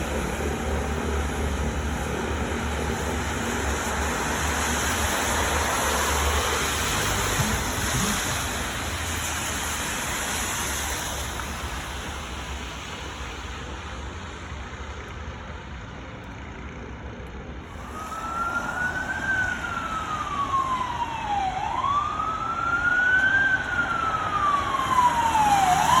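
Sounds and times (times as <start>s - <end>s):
storm wind buffeting microphone: 0.0s - 13.2s.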